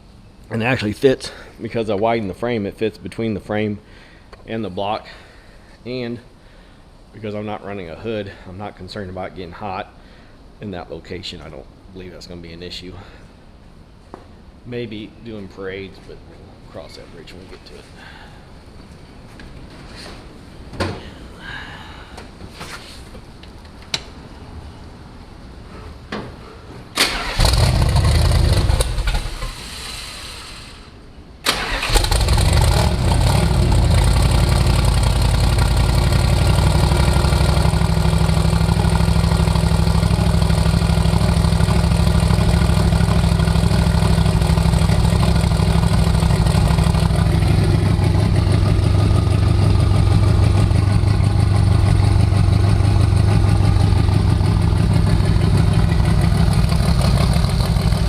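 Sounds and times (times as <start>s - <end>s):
engine starting and idling: 27.0s - 58.0s.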